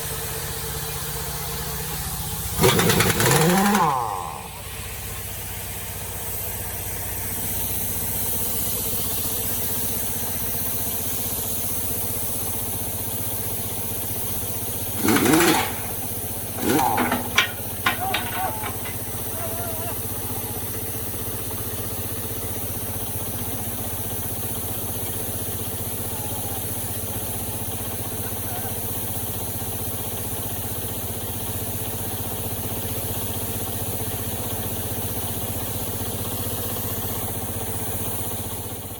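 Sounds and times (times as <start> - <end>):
heavy machine engine running: 2.5 - 4.9, 14.8 - 20.7.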